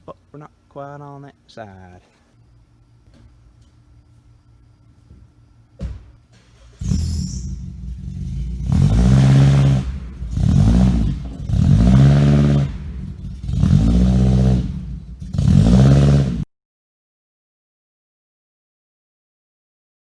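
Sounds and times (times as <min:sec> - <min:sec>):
car engine revving: 0:06.7 - 0:16.5.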